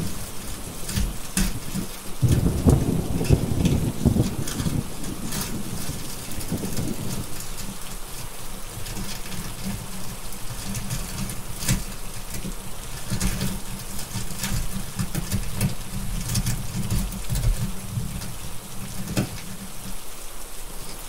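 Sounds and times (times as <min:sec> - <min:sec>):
low rumble of thunder: 0:00.0 - 0:09.9
steady rain: 0:00.0 - 0:21.0
wood fire crackling: 0:00.0 - 0:21.0.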